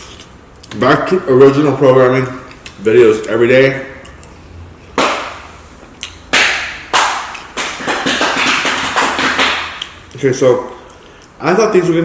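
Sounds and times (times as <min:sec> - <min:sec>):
breathing: 0:10.8 - 0:11.4.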